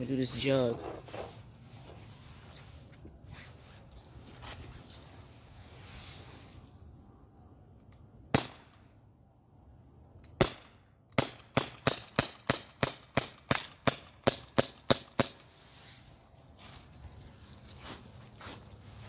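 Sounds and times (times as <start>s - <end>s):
air pistol shots: 8.3s - 8.8s, 10.4s - 15.4s.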